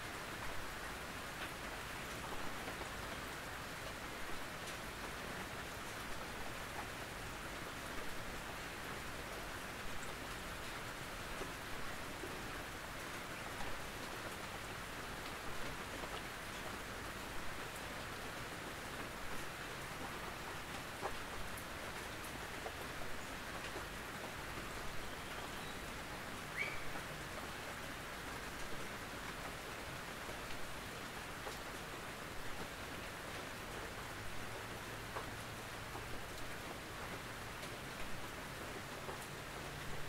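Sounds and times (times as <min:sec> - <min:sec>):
rain on a tin roof: 0:00.0 - 0:40.0.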